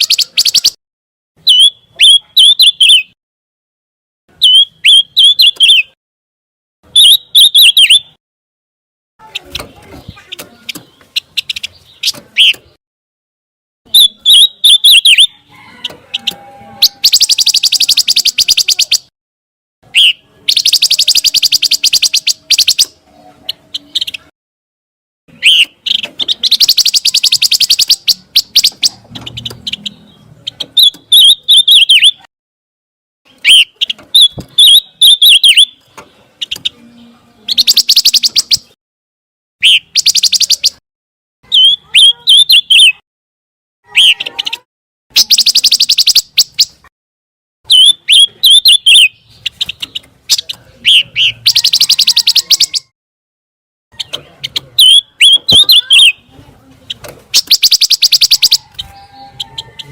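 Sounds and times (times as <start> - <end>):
bird whistles and trills: 0.0 - 0.8, 1.4 - 3.2, 4.4 - 6.0, 6.9 - 8.2, 9.2 - 12.7, 13.9 - 15.4, 16.2 - 19.1, 19.9 - 24.3, 25.3 - 32.3, 33.3 - 38.8, 39.6 - 40.8, 41.5 - 43.0, 43.9 - 46.8, 47.7 - 52.9, 54.8 - 56.2, 57.3 - 59.9.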